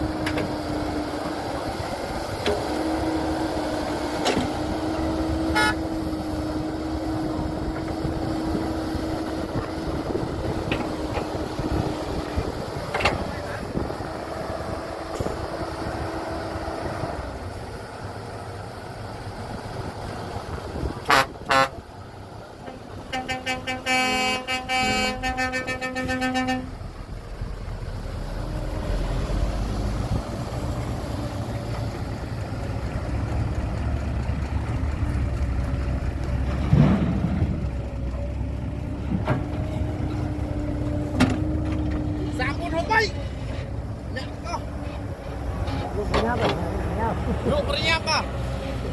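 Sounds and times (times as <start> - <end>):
deep engine rumble: 0.0 - 48.9
truck and machinery engines: 0.0 - 48.9
vehicle horn tooting: 5.5 - 5.9, 21.1 - 21.8, 22.7 - 26.8.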